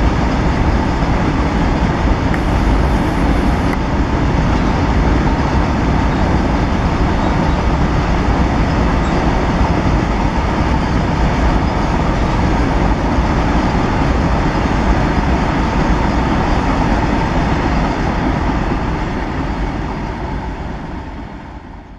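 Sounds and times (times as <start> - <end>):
train wheels rumbling on rail: 0.0 - 21.9.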